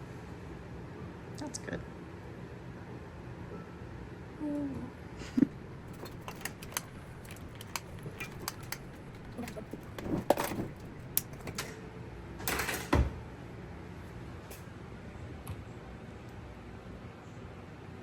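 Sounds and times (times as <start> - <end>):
utensil scraping pan: 5.5 - 11.8.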